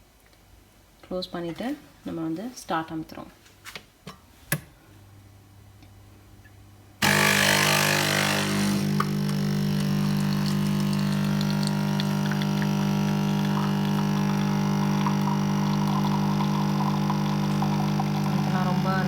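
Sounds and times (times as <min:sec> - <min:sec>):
coffee machine pump buzzing: 0:07.0 - 0:19.0.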